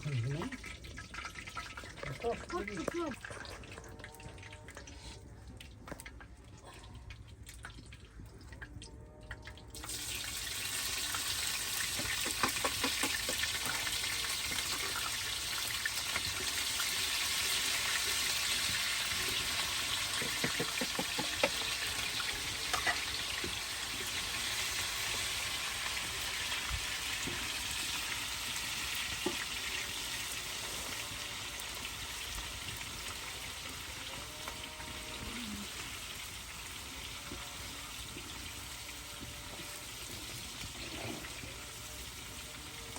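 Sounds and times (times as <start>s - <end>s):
food sizzling in hot fat: 9.8s - 42.9s.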